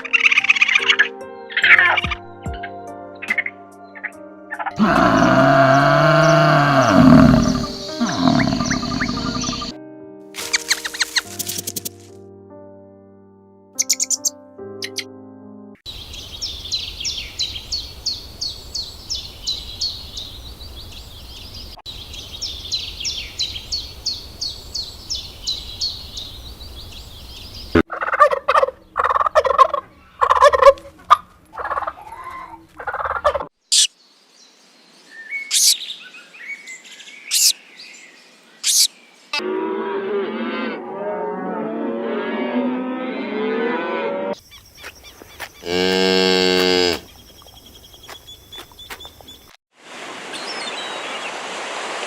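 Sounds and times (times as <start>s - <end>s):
farm fowl calling: 4.8s - 9.7s, 27.8s - 32.0s
low animal call: 4.8s - 9.7s
small bird singing: 4.8s - 9.7s, 13.8s - 15.0s, 15.9s - 27.8s, 33.6s - 39.3s, 46.8s - 49.6s.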